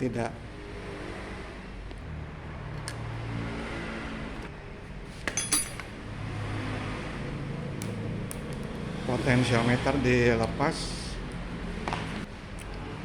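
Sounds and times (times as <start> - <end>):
metallic clinks of tools: 5.3 - 5.9.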